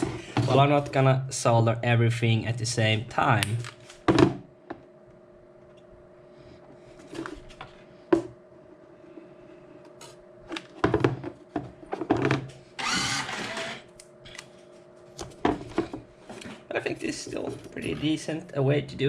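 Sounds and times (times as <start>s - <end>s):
faint steady hum: 0.0s - 19.0s
handheld power tool whirring: 12.8s - 13.9s.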